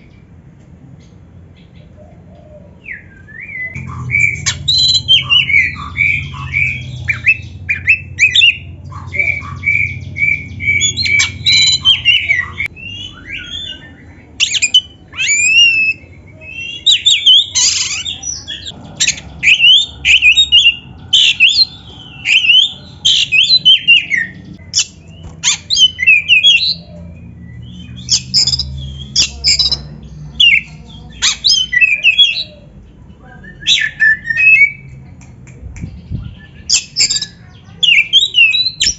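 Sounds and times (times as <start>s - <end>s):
bird singing whistles and chirps: 2.9s - 29.8s, 36.1s - 38.9s.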